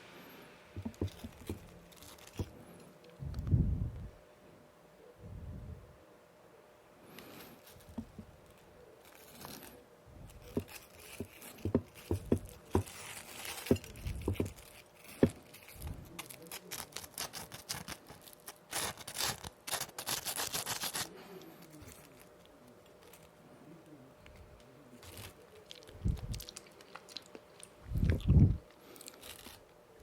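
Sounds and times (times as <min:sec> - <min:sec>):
light taps and clicks on packaging: 0:00.8 - 0:02.6, 0:10.4 - 0:15.5
packaging crinkling: 0:00.8 - 0:03.2, 0:07.2 - 0:23.3, 0:25.0 - 0:27.8, 0:28.7 - 0:29.8.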